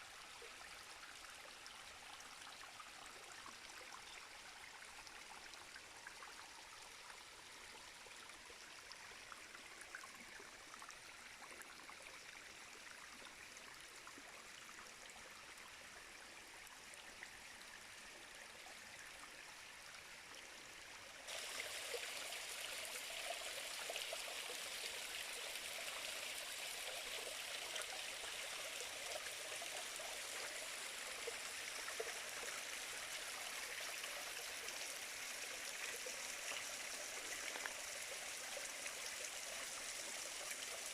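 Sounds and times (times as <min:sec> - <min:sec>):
stream water rushing: 0:21.3 - 0:40.9.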